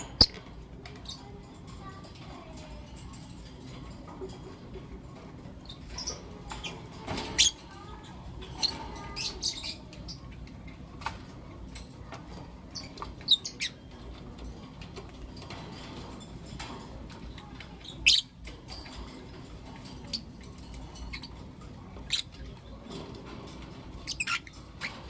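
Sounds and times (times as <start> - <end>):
lovebirds chirping: 0.0 - 2.5, 5.0 - 11.2, 12.6 - 15.6, 16.9 - 25.0.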